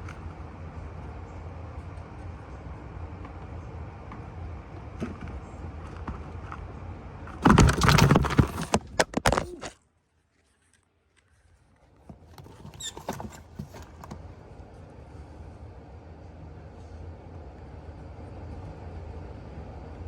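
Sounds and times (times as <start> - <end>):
clattering knocks: 7.4 - 9.4
loud rustling: 7.4 - 9.6.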